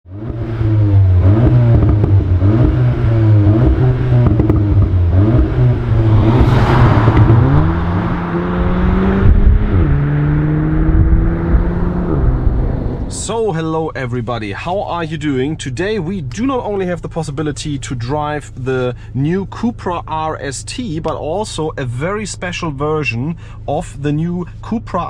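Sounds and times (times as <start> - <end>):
car engine revving: 0.1 - 13.4.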